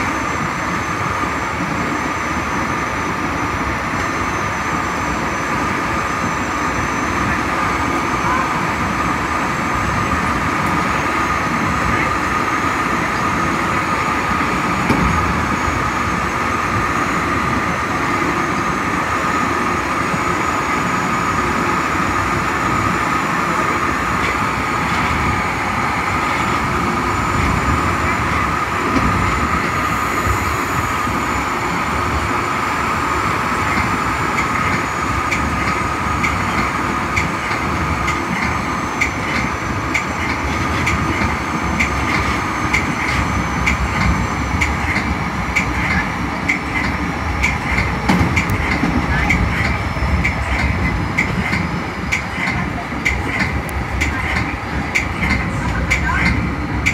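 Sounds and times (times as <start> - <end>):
high whine: 0.0 - 56.9
train wheels rumbling on rail: 0.0 - 56.9
wheels clicking over rail joints: 33.7 - 56.9.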